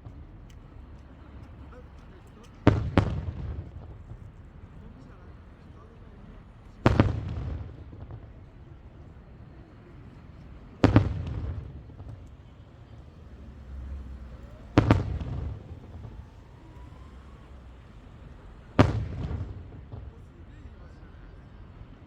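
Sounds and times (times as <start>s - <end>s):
firework shells booming: 2.5s - 4.2s, 6.8s - 8.4s, 10.8s - 12.2s, 14.5s - 16.2s, 18.8s - 20.2s.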